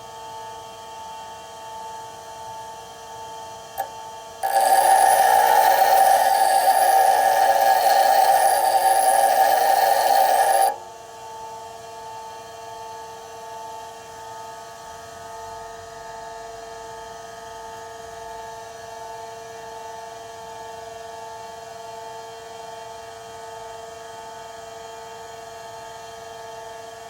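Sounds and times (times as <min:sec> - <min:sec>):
bench grinder humming: 0:03.8 - 0:10.8
drill bit grinding on wheel: 0:03.8 - 0:10.8.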